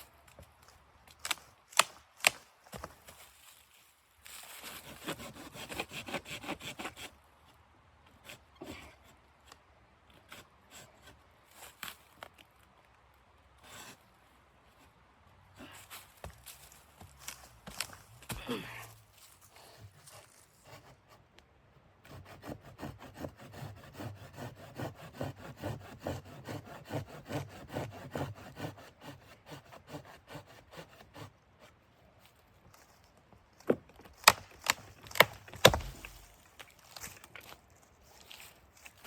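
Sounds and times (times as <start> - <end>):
hand saw cutting wood: 4.5 - 7.1, 22.0 - 31.7, 34.2 - 36.8
sharp knocks: 35.2 - 36.3.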